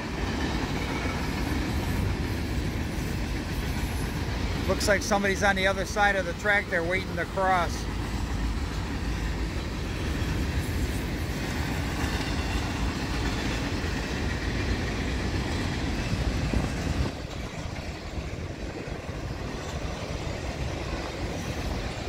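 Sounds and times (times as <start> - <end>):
steel train wheels on rails: 0.0 - 22.0.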